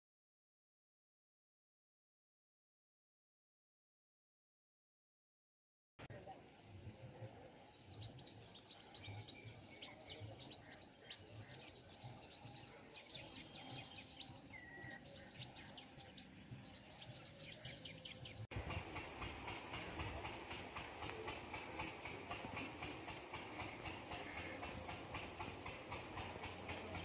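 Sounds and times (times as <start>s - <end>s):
small birds chirping and trilling: 6.7s - 18.5s
rough noise with fast ticking: 18.5s - 27.0s.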